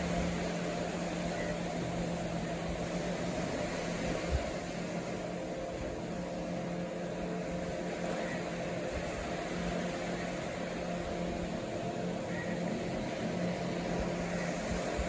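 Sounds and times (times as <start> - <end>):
constant rushing noise: 0.0 - 15.0.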